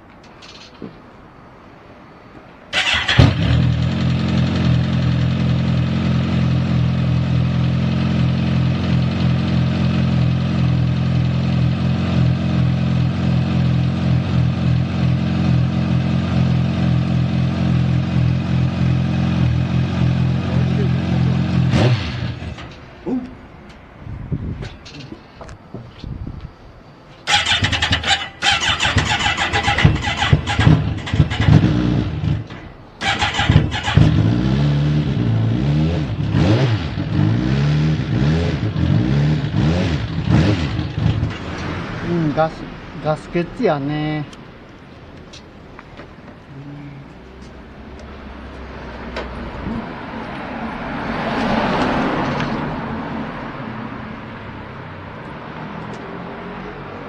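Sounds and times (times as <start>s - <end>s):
motorcycle engine revving: 2.7s - 22.9s, 27.3s - 43.1s.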